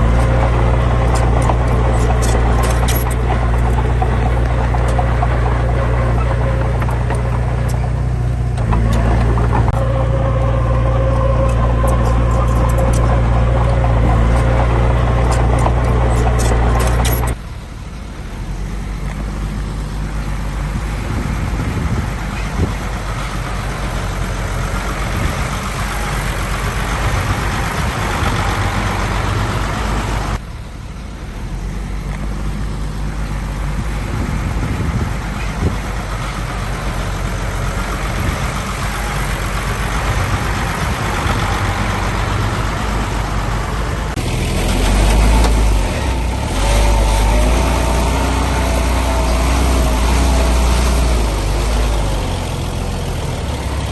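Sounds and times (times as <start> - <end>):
wavering whine: 0.0 - 31.0
truck diesel engines running: 0.0 - 53.9.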